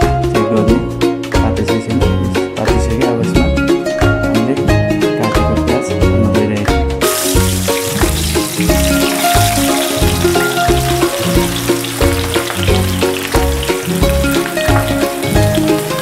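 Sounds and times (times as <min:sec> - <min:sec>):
background music with bass line: 0:00.0 - 0:16.0
onions sizzling in hot oil: 0:07.0 - 0:16.0.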